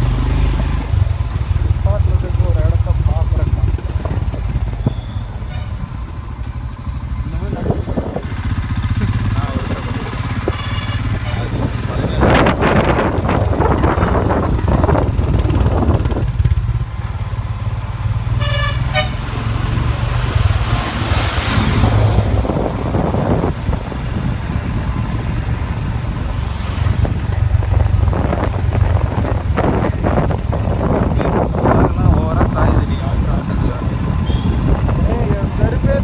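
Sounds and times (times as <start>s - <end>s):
motorcycle running: 0.0s - 36.0s
vehicle horn honking: 4.9s - 5.8s, 10.4s - 11.7s, 18.4s - 19.3s, 34.2s - 34.7s
wind over microphone: 7.3s - 17.0s, 19.9s - 36.0s.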